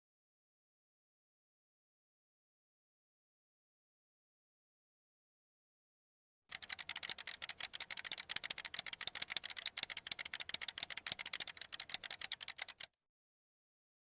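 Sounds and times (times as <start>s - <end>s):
rapid crackle of sharp clicks: 6.5s - 12.9s.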